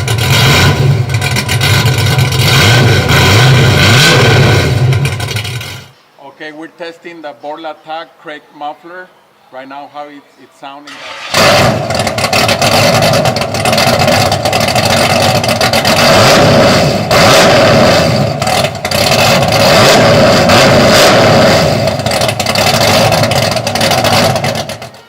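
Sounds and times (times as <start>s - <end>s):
loud engine revving: 0.0s - 5.9s, 10.9s - 25.0s.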